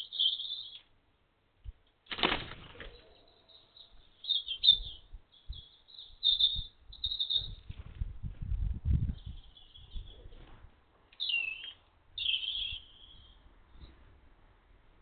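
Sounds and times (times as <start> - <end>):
small birds chirping: 0.0 - 1.0, 2.8 - 7.8, 8.9 - 14.0.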